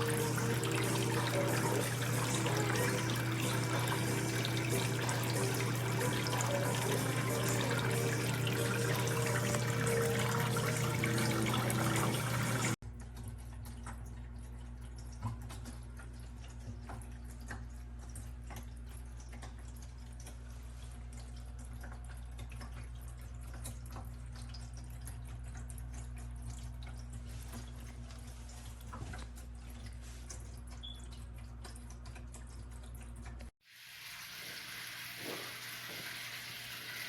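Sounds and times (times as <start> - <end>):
water rushing in fountain: 0.0 - 12.8
water trickling with drips: 0.0 - 37.0.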